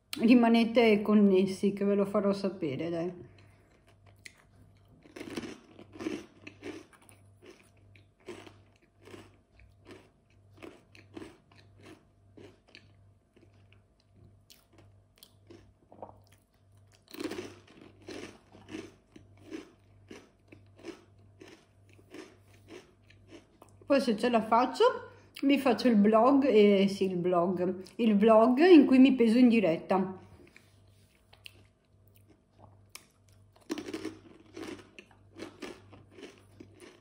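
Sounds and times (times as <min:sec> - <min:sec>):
faint low hum: 0:00.0 - 0:37.0
person chewing: 0:03.2 - 0:23.9, 0:30.3 - 0:37.0
person biting crunchy snack: 0:03.4 - 0:13.5, 0:14.5 - 0:23.8, 0:31.3 - 0:37.0.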